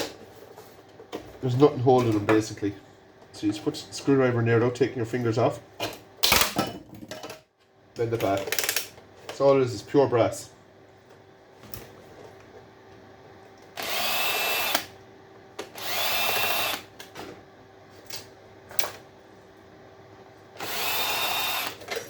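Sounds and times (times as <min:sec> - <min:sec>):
power drill whining: 0:13.8 - 0:14.9, 0:15.7 - 0:16.9, 0:20.6 - 0:22.0.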